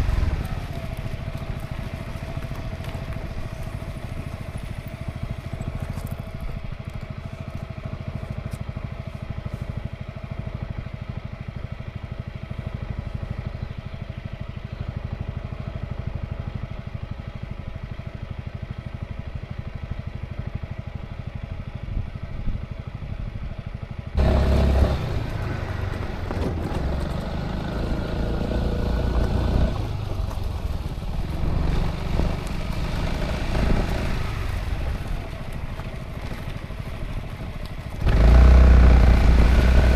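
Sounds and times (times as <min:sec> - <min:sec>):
road noise: 0:00.0 - 0:39.9
scooter engine running: 0:00.0 - 0:39.9.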